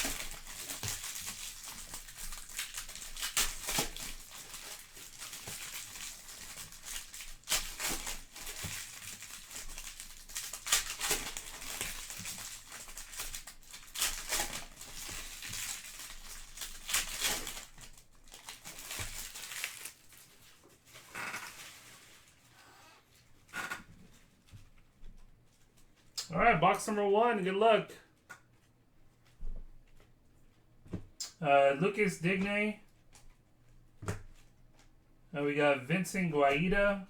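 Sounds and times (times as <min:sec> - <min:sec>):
wrappers crinkling and tearing: 0:00.0 - 0:23.4.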